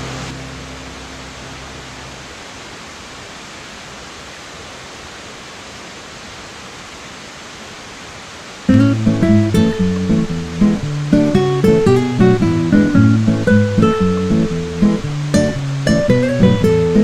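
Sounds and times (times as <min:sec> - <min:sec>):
waterfall roaring: 0:00.0 - 0:17.0
background music: 0:08.7 - 0:17.0.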